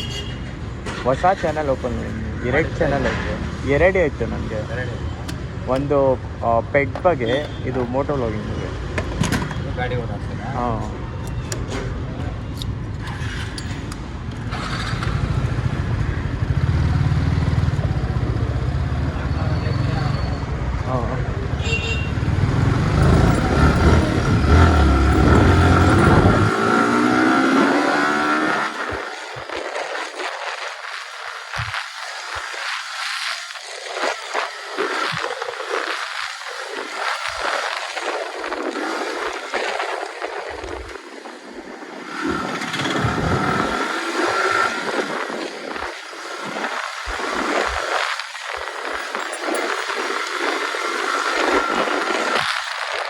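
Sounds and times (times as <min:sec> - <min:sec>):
motorcycle road and engine noise: 0:00.0 - 0:53.0
wind rumble on microphone: 0:10.1 - 0:53.0
motorcycle engine running: 0:21.2 - 0:29.0.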